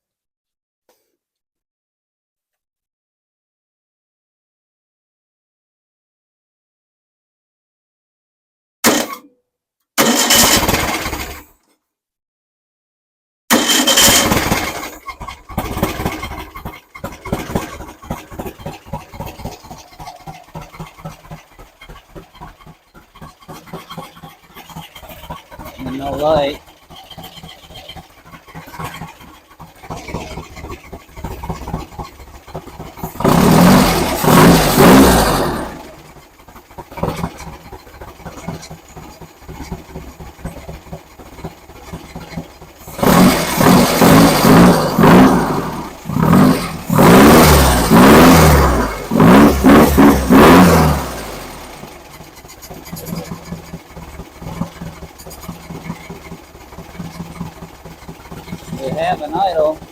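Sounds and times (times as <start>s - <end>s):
engine revving and idling: 10.0s - 11.5s, 13.5s - 59.9s.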